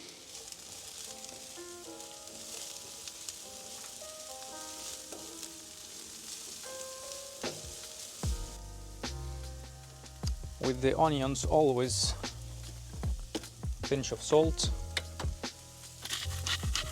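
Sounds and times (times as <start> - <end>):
onions sizzling in a pan: 0.0 - 16.9
soft background music: 0.0 - 16.9.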